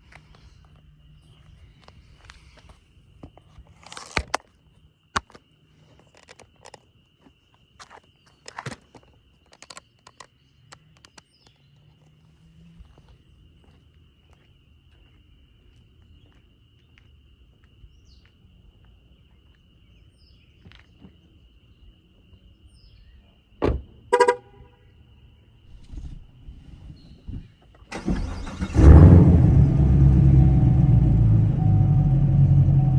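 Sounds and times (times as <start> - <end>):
car horn toot: 24.1 - 24.8.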